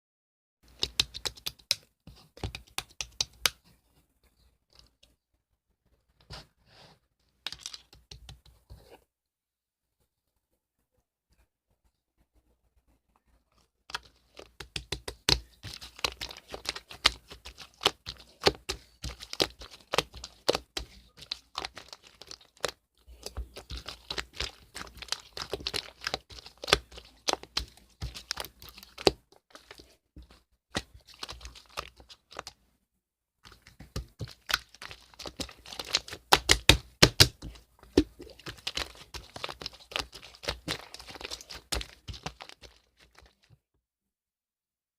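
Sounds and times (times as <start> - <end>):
slime squished by hand: 14.3 - 32.5, 33.5 - 43.5.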